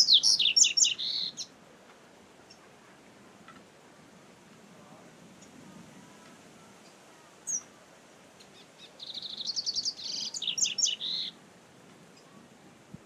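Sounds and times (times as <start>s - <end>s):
bird singing high notes: 0.0s - 1.5s.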